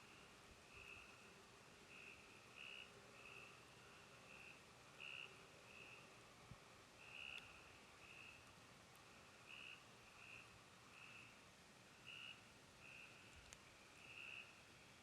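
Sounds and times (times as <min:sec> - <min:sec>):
frogs calling: 0:01.9 - 0:03.5, 0:04.3 - 0:06.0, 0:07.0 - 0:08.4, 0:09.5 - 0:11.4, 0:12.1 - 0:13.4, 0:14.0 - 0:14.6.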